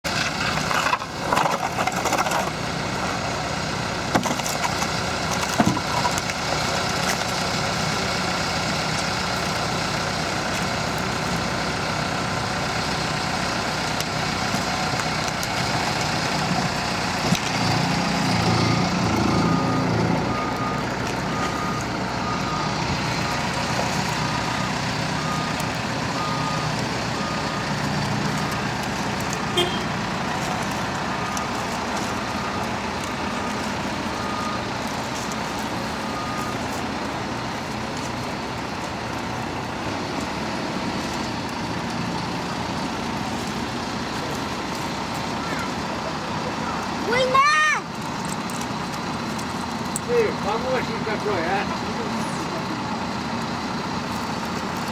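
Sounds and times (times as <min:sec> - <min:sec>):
heavy vehicle engine running: 0:00.0 - 0:54.9
reversing alarm beeps: 0:18.2 - 0:28.5, 0:33.3 - 0:34.8, 0:35.7 - 0:36.7.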